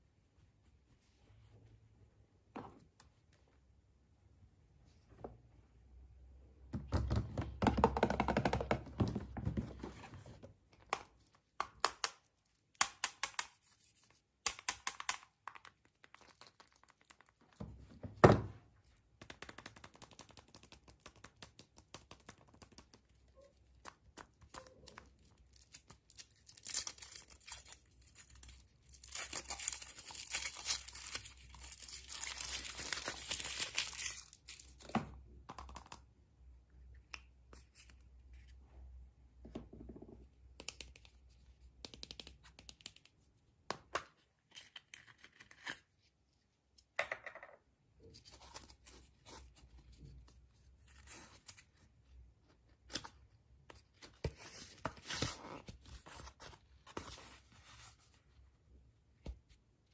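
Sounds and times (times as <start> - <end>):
clicks and taps: 6.8 - 9.2, 14.4 - 17.3, 39.5 - 41.2
wrapping rustling and tearing: 25.5 - 34.7.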